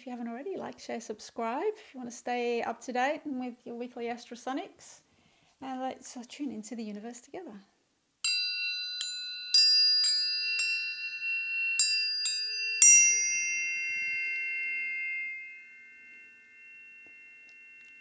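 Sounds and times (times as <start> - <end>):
high ringing tones: 8.2 - 18.0
tuning forks struck: 8.2 - 18.0.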